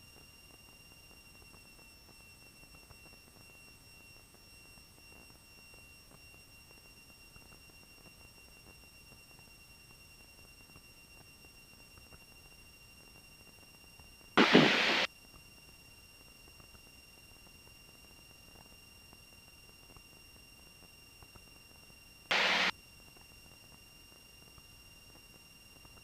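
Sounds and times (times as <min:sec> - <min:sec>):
faint hiss: 0:14.4 - 0:15.1, 0:22.3 - 0:22.7.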